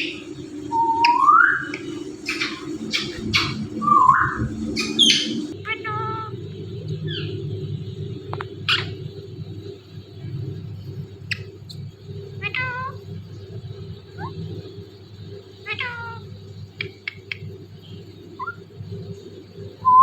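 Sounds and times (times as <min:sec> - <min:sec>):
sharp bird chirps: 0:00.0 - 0:05.6
steady low hum: 0:00.0 - 0:20.0
parrot imitating cat meow: 0:12.4 - 0:13.0, 0:15.6 - 0:16.2.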